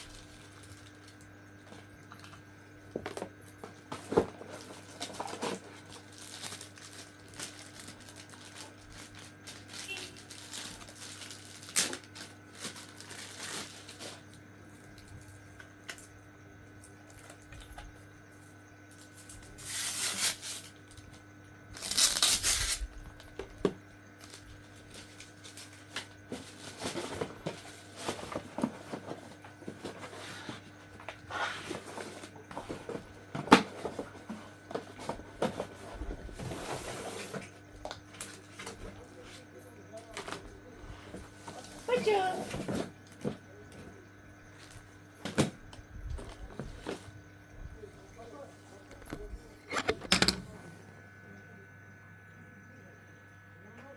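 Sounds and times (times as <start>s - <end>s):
packaging tearing and crinkling: 4.4s - 14.3s, 21.8s - 23.2s
clicks and knocks of parts: 48.9s - 50.5s.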